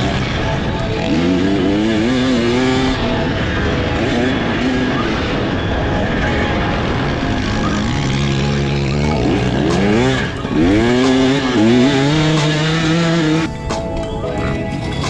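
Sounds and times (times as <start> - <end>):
constant rushing noise: 0.0 - 15.0
dirt bike engine revving: 0.0 - 15.0.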